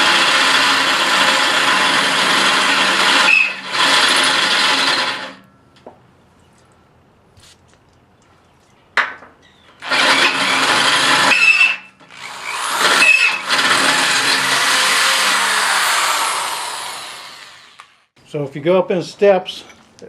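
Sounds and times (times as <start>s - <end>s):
power drill boring through steel: 0.0s - 5.4s, 9.8s - 18.1s.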